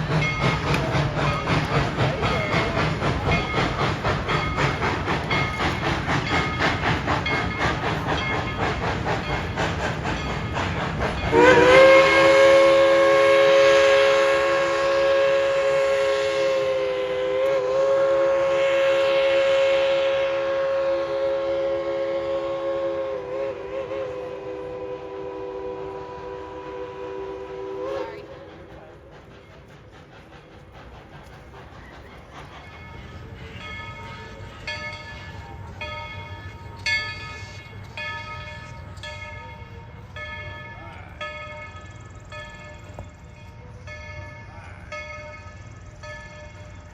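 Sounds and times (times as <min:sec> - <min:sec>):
locomotive bell ringing: 0:00.0 - 0:15.1, 0:32.1 - 0:46.9
steam locomotive whistle blast: 0:00.0 - 0:29.4
low train rumble: 0:00.0 - 0:46.9.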